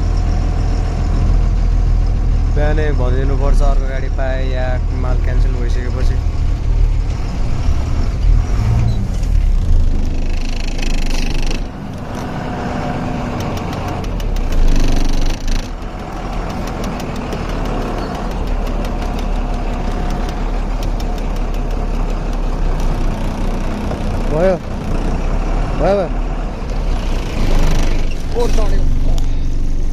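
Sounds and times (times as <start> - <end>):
diesel truck engine running: 0.0 - 29.9.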